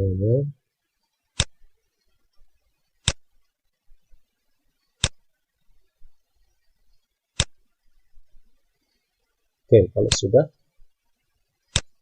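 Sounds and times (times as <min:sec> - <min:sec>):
computer mouse clicks: 0:01.4 - 0:01.6, 0:03.0 - 0:03.2, 0:07.4 - 0:07.6, 0:11.7 - 0:12.0.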